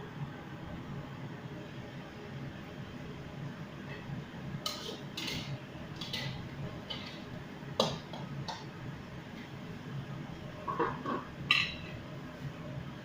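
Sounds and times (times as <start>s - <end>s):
low background hum: 0.0s - 13.0s
utensils and dishes clinking: 4.6s - 8.0s, 10.7s - 11.9s.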